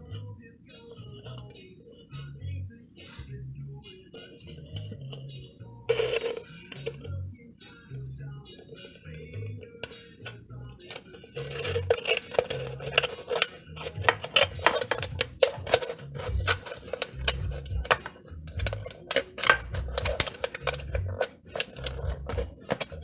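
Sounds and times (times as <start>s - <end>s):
tools snipping thin metal: 11.4s - 23.0s
low handling thumps: 16.1s - 16.6s, 17.2s - 18.8s.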